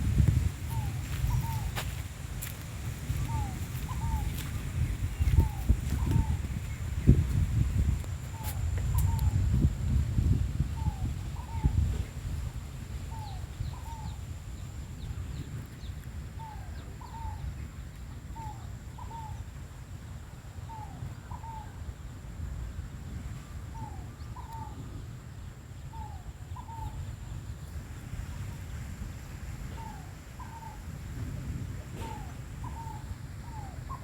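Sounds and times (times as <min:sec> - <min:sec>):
steady low rumble: 0:00.0 - 0:16.2.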